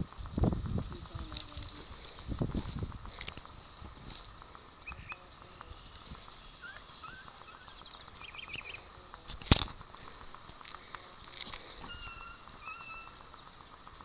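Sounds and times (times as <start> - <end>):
bird chirps and trills: 4.4 - 14.0.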